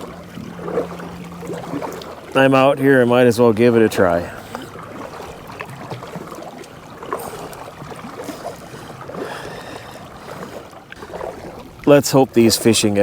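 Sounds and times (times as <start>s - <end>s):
paddle splashing water: 0.0s - 13.0s.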